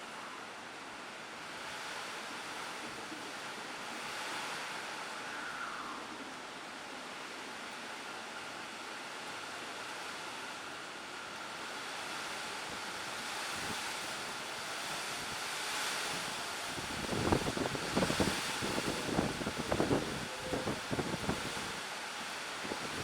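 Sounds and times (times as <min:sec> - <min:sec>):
wind and rain rushing: 0:00.0 - 0:23.0
wind buffeting microphone: 0:16.1 - 0:21.8, 0:22.6 - 0:23.0.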